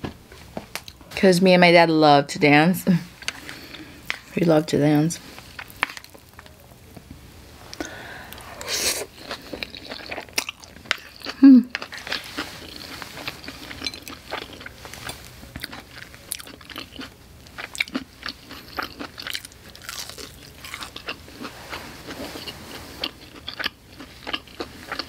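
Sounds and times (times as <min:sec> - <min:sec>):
crunchy fried chicken chewing: 0:07.8 - 0:25.0.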